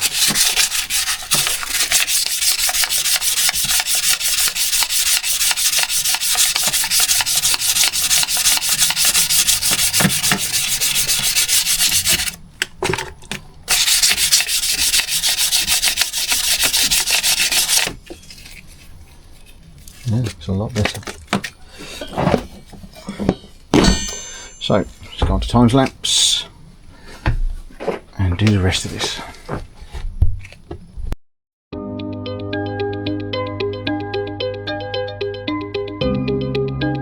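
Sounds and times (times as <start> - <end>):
abrasive paper rasping on metal: 0.0 - 12.4, 13.7 - 18.3.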